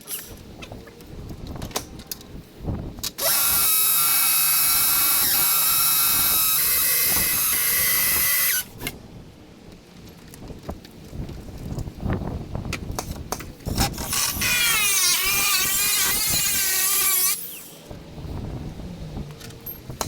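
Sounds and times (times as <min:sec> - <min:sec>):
power tool whining: 0:03.2 - 0:08.7, 0:13.7 - 0:17.9.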